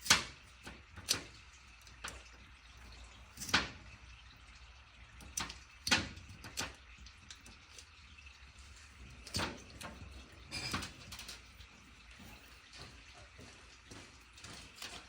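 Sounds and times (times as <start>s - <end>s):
metal tools clicking and knocking: 9.2s - 11.6s.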